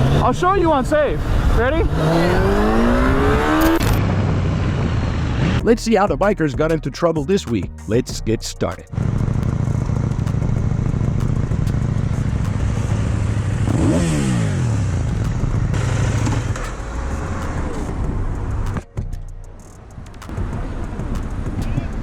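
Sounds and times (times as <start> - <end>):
road and wind noise: 0.0 - 5.8, 8.6 - 22.0
motorcycle engine running: 8.7 - 22.0.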